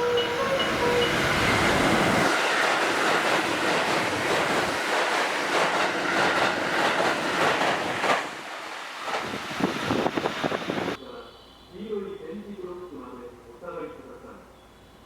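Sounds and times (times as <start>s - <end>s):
train rushing past: 0.0s - 11.0s.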